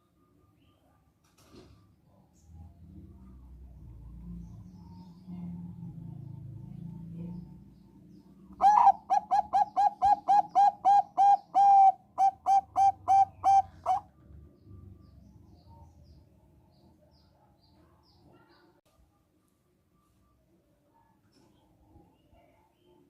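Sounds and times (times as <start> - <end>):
dove cooing: 8.6 - 14.1.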